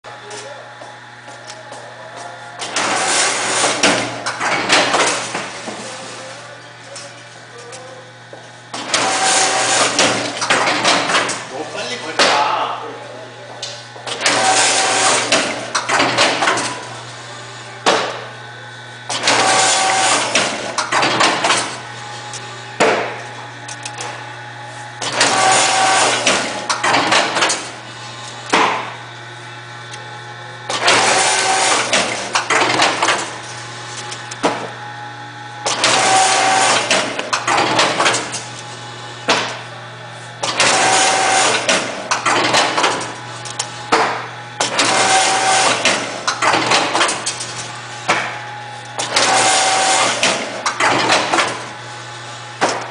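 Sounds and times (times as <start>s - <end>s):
steady motor hum: 0.0s - 52.9s
binding machine clattering: 25.0s - 27.7s, 30.7s - 33.4s, 35.7s - 38.5s, 40.4s - 48.4s, 49.0s - 51.7s.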